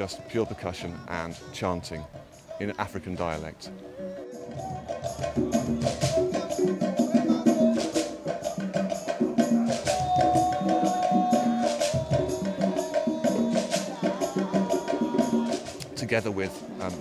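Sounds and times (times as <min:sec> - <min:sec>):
voices chanting: 0:00.0 - 0:17.0
hand drums playing: 0:01.0 - 0:17.0
wooden clicking beat: 0:04.6 - 0:16.0.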